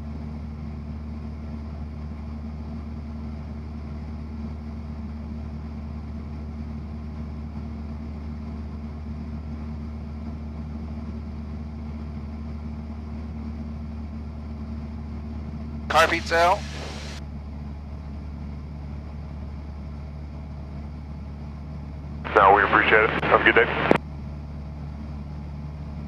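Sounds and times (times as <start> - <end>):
propeller aircraft engine droning: 15.9 - 17.2, 19.4 - 24.0.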